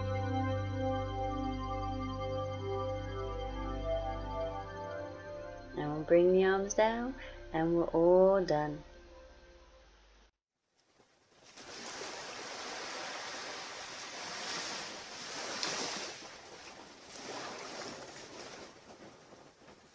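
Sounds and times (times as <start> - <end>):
ocean surf on beach: 11.4 - 19.7.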